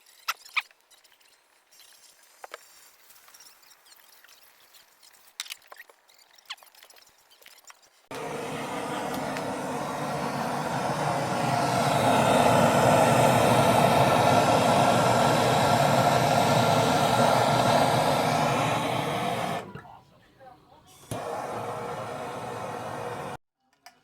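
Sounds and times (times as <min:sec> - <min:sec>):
small electric motor whirring: 0:08.1 - 0:19.8
whining tones: 0:08.1 - 0:19.9.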